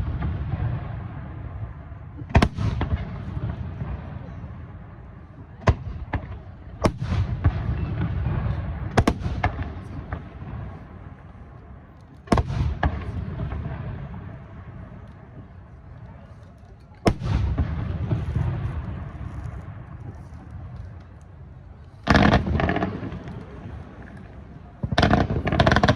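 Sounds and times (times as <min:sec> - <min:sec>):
firework crackling: 0:00.0 - 0:25.9
rolling echo rumble: 0:17.1 - 0:25.9.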